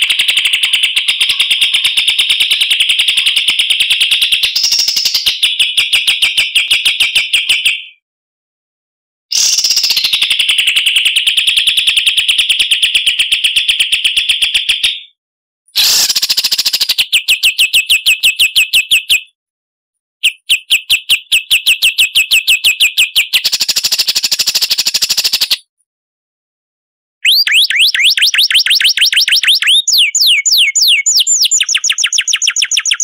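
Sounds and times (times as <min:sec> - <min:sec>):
songbird trilling: 0:27.2 - 0:33.0.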